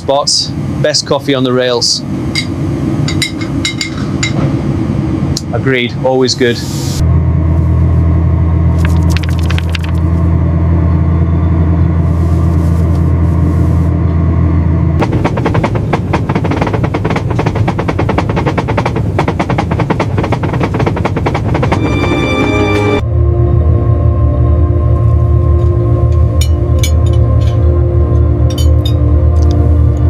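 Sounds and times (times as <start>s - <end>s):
locomotive rumbling on rails: 0.0s - 23.0s
rapid rattling clatter: 8.8s - 10.1s, 15.0s - 21.8s.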